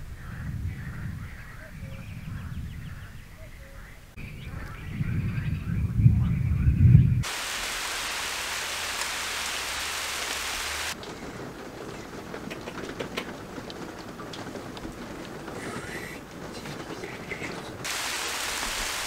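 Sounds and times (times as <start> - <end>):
thunder rumble: 4.2 - 19.0
heavy rain hissing: 7.2 - 11.6, 15.5 - 19.0
raindrops tapping: 7.2 - 19.0.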